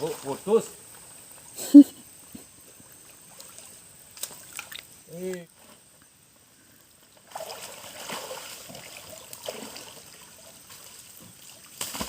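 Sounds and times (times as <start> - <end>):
river water splashing: 0.0 - 5.4, 7.2 - 12.0.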